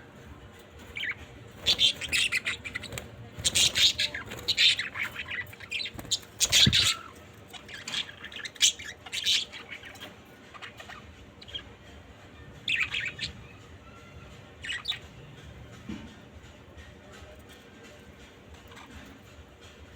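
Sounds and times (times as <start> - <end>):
budgerigars chirping and squawking: 0.2 - 11.8, 12.6 - 14.0, 14.6 - 15.2, 18.6 - 19.3.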